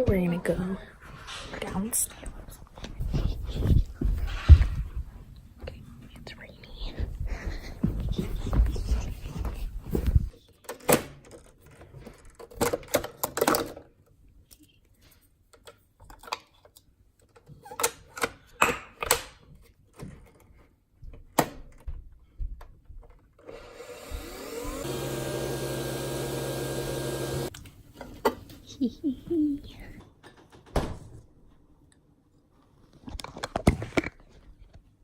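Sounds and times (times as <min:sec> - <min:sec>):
small appliance motor humming: 0:23.4 - 0:27.5.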